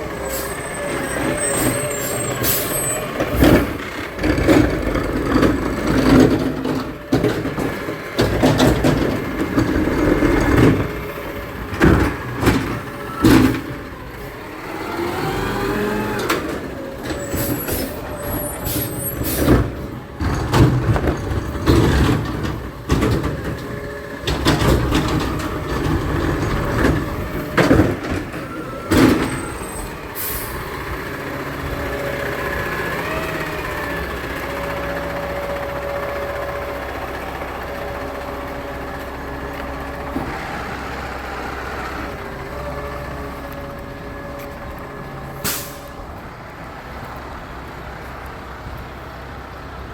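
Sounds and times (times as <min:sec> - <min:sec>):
garbage truck engine rumbling: 0:00.0 - 0:49.9
sharp bangs and hisses: 0:45.4 - 0:45.9.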